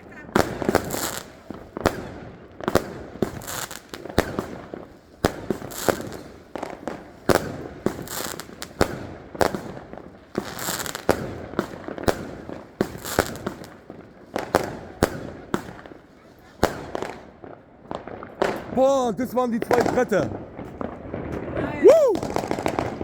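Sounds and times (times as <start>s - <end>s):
firecracker bangs: 18.4s - 23.0s.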